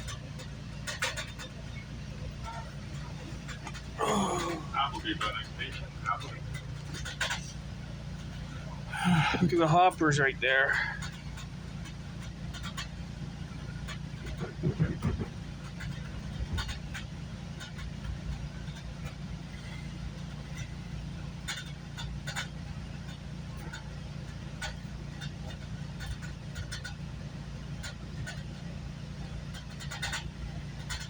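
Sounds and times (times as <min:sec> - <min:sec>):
clicks and rattles from track: 0:00.0 - 0:31.0
train rumbling: 0:00.0 - 0:31.0.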